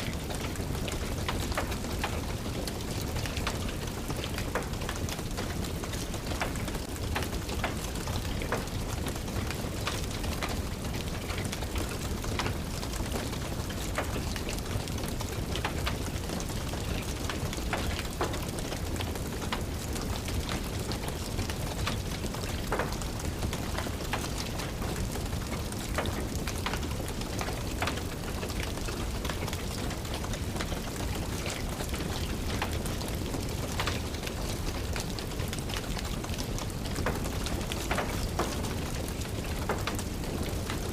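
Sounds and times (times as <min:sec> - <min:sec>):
rain pattering: 0:00.0 - 0:40.9
wood fire crackling and popping: 0:00.1 - 0:40.9.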